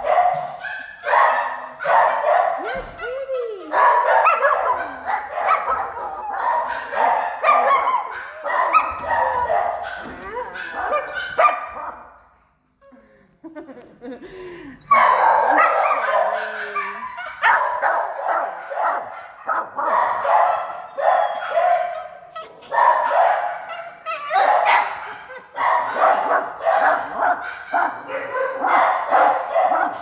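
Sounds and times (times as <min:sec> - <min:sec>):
dogs barking: 0:00.0 - 0:03.0, 0:03.7 - 0:12.3, 0:14.9 - 0:30.0.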